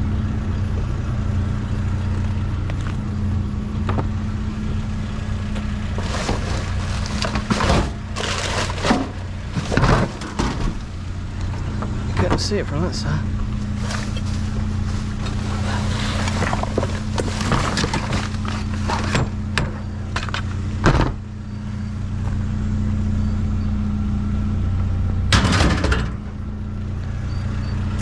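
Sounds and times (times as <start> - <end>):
vehicle engine humming: 0.0 - 28.0
knocks and clatter: 5.6 - 12.5, 13.8 - 21.2, 25.3 - 26.2.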